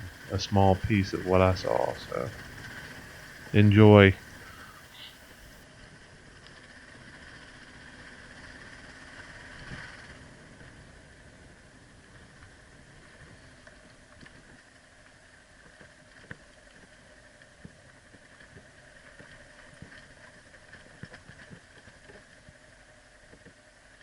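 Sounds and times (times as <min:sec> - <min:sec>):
motorcycle engine: 0:00.0 - 0:05.6.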